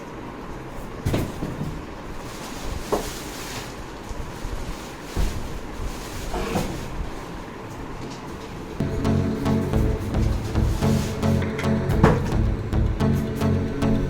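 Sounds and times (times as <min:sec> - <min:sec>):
knocks and thumps: 0:11.9 - 0:13.1.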